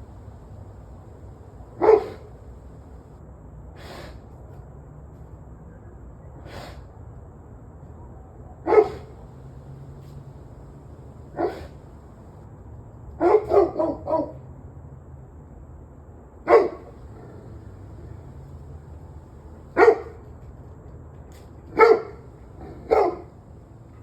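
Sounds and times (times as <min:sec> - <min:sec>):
dog barking: 0:00.0 - 0:02.9, 0:08.6 - 0:09.6, 0:10.6 - 0:12.3, 0:13.2 - 0:14.4, 0:16.5 - 0:20.2, 0:21.7 - 0:23.4.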